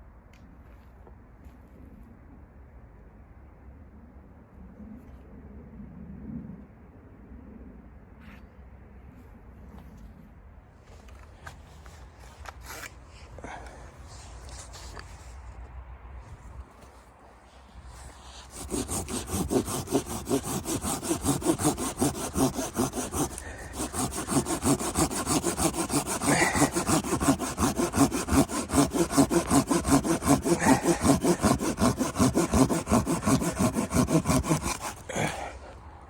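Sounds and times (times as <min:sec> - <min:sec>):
hand saw cutting wood: 0:12.3 - 0:15.2, 0:18.0 - 0:35.8.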